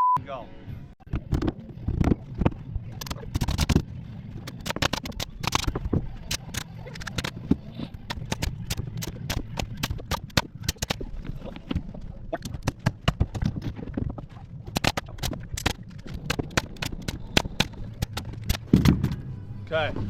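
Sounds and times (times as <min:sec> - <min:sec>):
nail gun shots: 0:04.5 - 0:05.7, 0:06.3 - 0:07.4, 0:08.1 - 0:11.0, 0:14.7 - 0:19.2.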